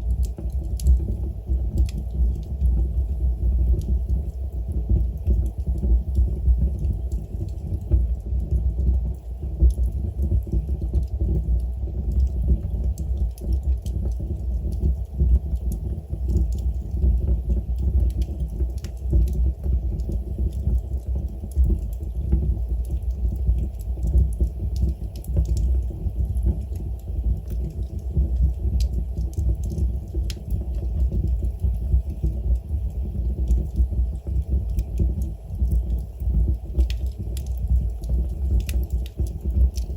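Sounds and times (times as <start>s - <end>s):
fire flames rumbling: 12.2s - 39.9s.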